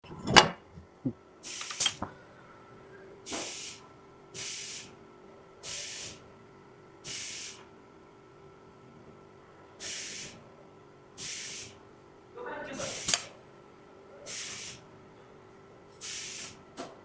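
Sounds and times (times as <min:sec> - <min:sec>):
compressed air hiss bursts: 0:01.4 - 0:02.0, 0:03.3 - 0:03.8, 0:04.4 - 0:05.0, 0:05.6 - 0:06.2, 0:07.1 - 0:07.6, 0:09.8 - 0:10.4, 0:11.2 - 0:11.8, 0:12.8 - 0:13.3, 0:14.3 - 0:14.9, 0:16.0 - 0:16.6.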